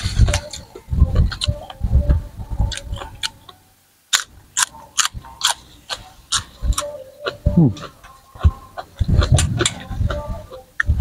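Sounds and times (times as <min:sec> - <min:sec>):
crunching raw stems: 0:04.1 - 0:07.0.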